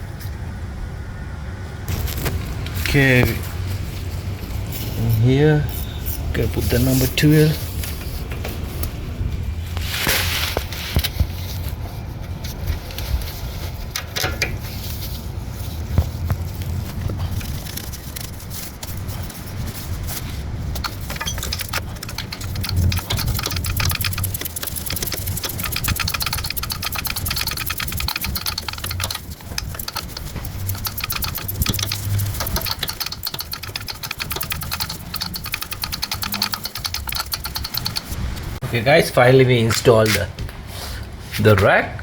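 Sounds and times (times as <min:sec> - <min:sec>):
ratchet wrench clicking: 0:20.8 - 0:38.2.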